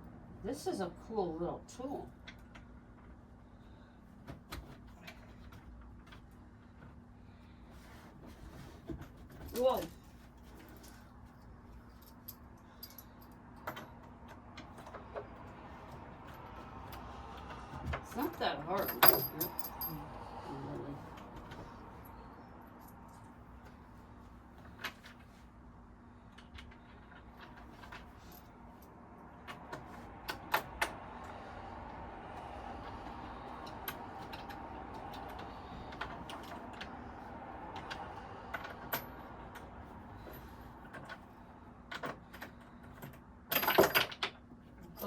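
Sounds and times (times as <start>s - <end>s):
furniture parts clicking and clinking: 8.0s - 20.1s, 32.8s - 45.0s.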